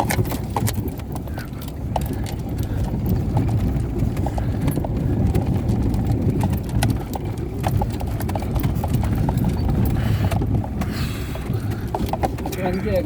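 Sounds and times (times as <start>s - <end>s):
knocks and rattles over bumps: 0.0s - 13.0s
vehicle rumble on rough track: 0.0s - 13.0s.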